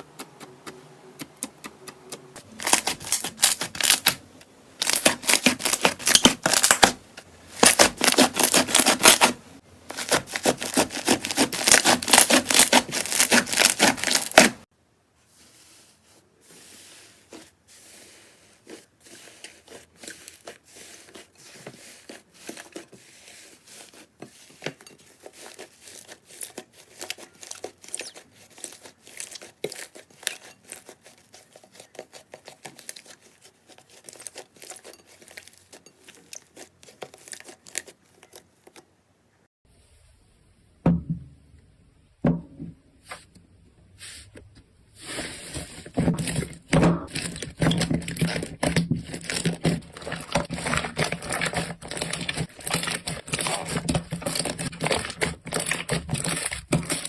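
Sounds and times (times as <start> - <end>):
slime crackling: 2.4 - 4.2, 4.8 - 7.0, 7.6 - 14.7, 45.6 - 57.0.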